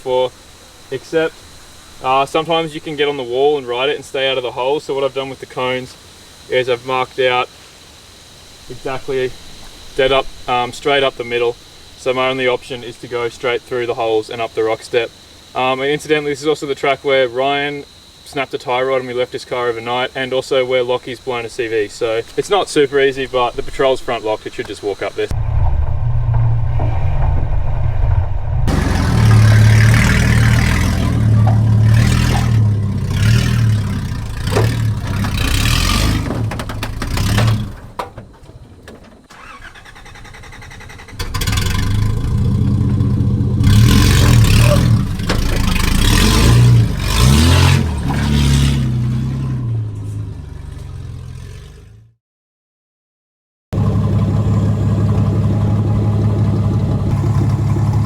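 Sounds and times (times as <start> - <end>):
engine revving without exhaust: 26.1 - 37.8, 39.4 - 52.2, 53.8 - 58.0.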